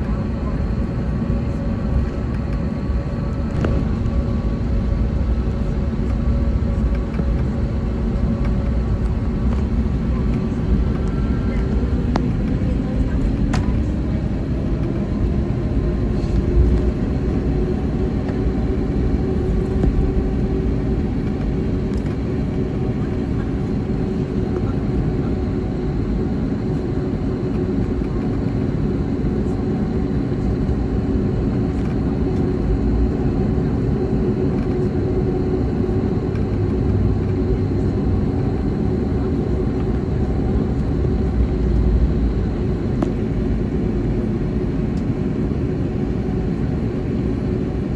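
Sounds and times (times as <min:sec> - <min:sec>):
airplane cabin engine rumble: 0:00.0 - 0:47.9.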